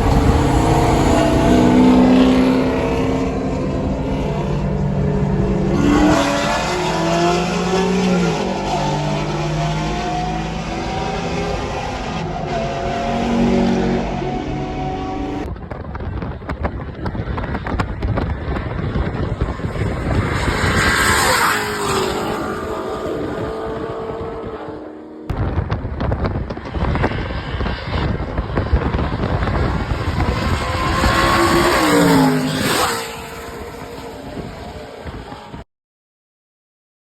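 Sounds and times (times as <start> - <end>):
racing car engines at full throttle: 0.0 - 35.6
rushing road noise: 0.0 - 35.6.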